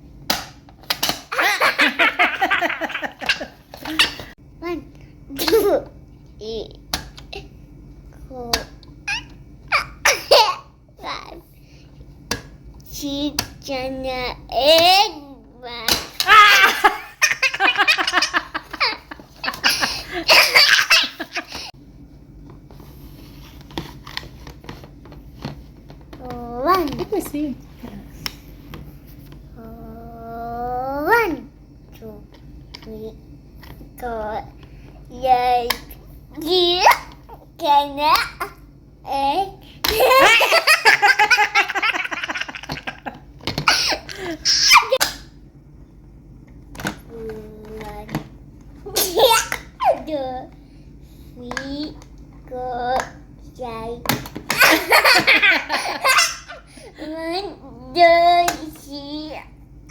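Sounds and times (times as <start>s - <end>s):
small child laughing: 1.3s - 4.3s, 9.1s - 10.6s, 16.2s - 21.7s, 39.9s - 45.0s, 54.6s - 56.8s.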